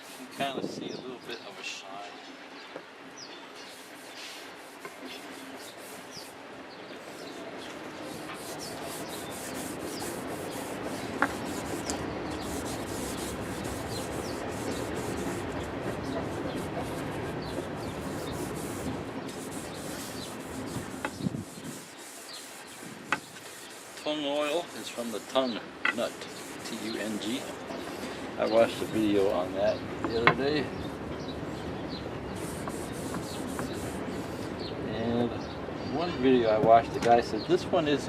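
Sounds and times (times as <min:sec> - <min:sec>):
hand rubbing wooden handle: 0:03.6 - 0:06.4, 0:07.0 - 0:31.0, 0:32.4 - 0:34.5.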